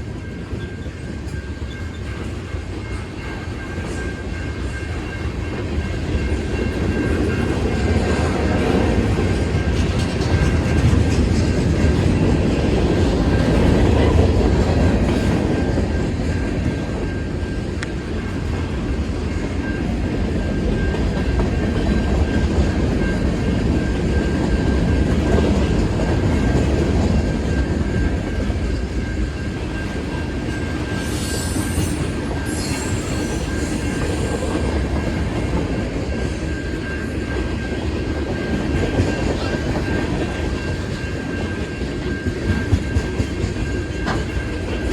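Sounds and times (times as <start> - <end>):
freight train rumbling past: 0.0 - 44.9
high-pitched wheel squeal: 30.9 - 34.7.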